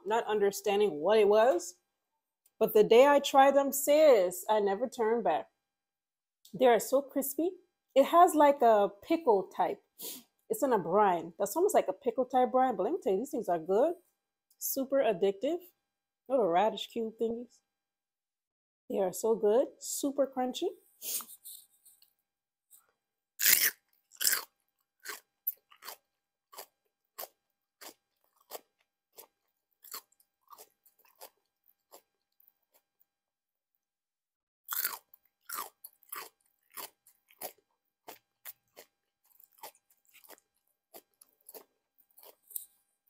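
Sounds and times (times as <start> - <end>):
person crunching pickled radish: 22.8 - 33.1, 34.7 - 43.0.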